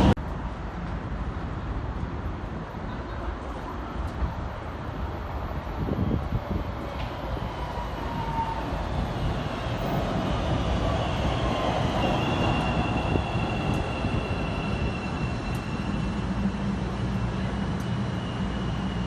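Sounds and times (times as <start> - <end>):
train wheels rumbling on rail: 0.0 - 19.0
high train squeal: 5.6 - 19.0.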